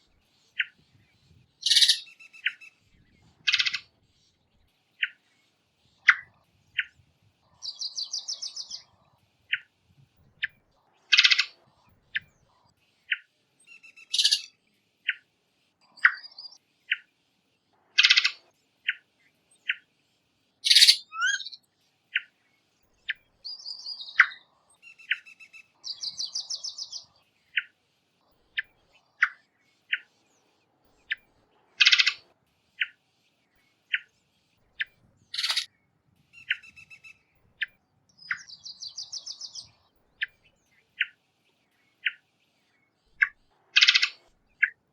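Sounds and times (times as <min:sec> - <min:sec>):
buzzy pulsed bird trills: 0:01.6 - 0:02.8, 0:13.8 - 0:14.5, 0:20.6 - 0:21.6, 0:35.4 - 0:35.7
sharp bird calls: 0:01.6 - 0:02.8, 0:03.4 - 0:04.3, 0:11.1 - 0:11.6, 0:13.8 - 0:14.5, 0:18.0 - 0:18.4, 0:20.6 - 0:22.3, 0:31.8 - 0:32.9, 0:34.8 - 0:35.7, 0:43.1 - 0:44.8
bird chip notes: 0:20.6 - 0:21.5, 0:35.4 - 0:35.7.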